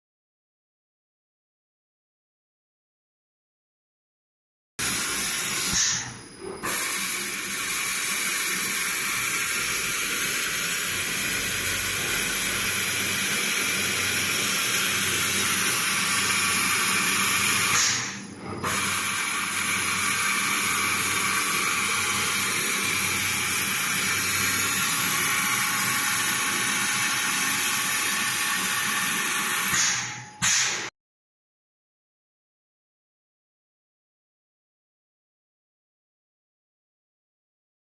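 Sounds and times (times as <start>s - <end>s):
machine hissing with faint tones: 4.8s - 30.9s.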